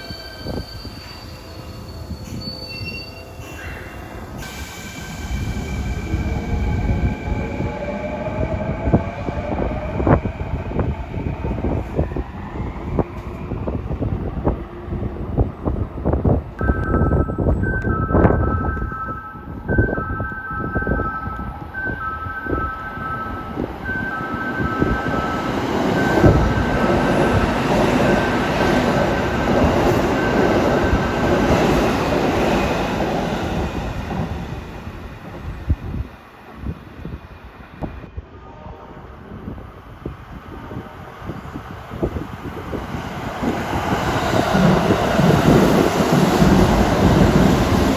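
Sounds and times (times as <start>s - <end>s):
thin high squeal: 0.0s - 4.8s
train wheels rumbling on rails: 0.0s - 38.2s, 39.2s - 47.9s.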